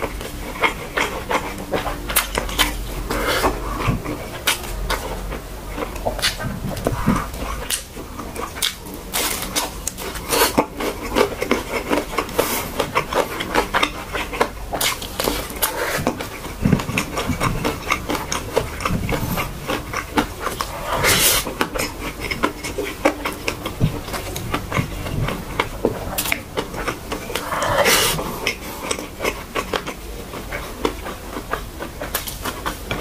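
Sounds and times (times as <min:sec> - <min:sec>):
person chewing with wet mouth clicks: 0:00.0 - 0:33.0.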